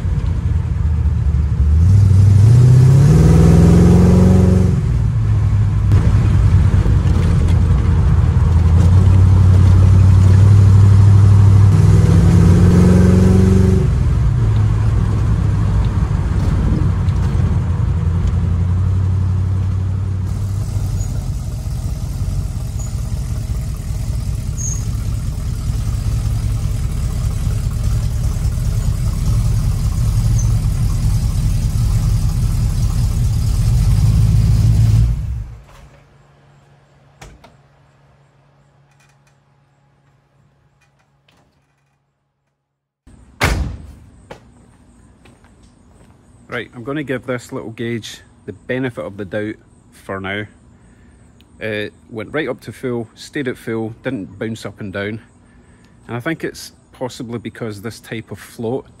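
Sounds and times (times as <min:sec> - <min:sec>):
car engine accelerating: 0:00.0 - 0:35.7.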